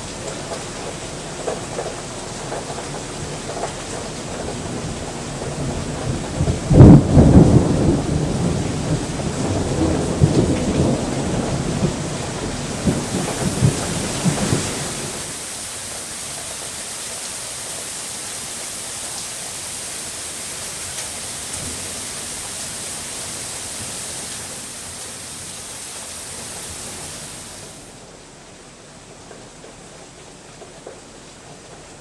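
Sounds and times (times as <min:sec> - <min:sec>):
heavy rain falling: 0:00.0 - 0:32.0
thunder rumble: 0:05.4 - 0:15.6, 0:21.1 - 0:27.9.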